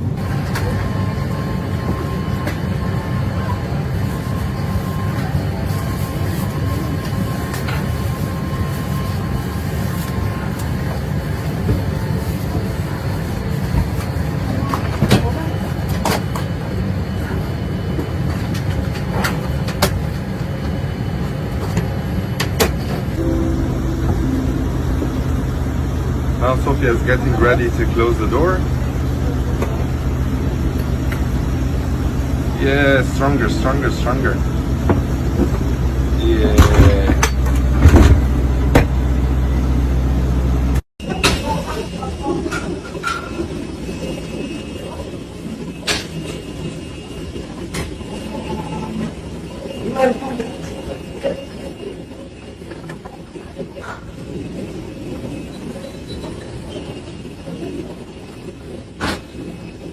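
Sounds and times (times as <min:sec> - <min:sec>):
airliner cabin rumble: 0:00.0 - 0:40.8.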